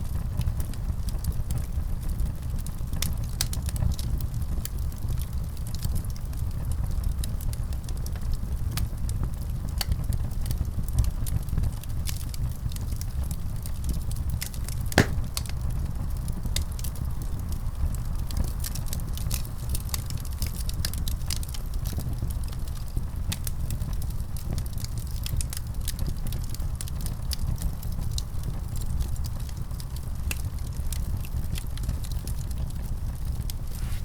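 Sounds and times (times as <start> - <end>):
low rumble of fire: 0.0 - 34.0
wood fire crackling: 0.1 - 34.0
fire pops: 14.4 - 15.7.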